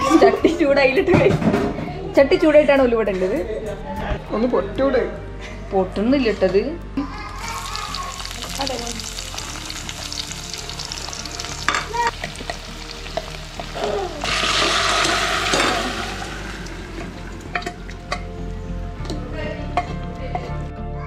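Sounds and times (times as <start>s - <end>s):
shallots sizzling in hot oil: 7.4s - 18.3s.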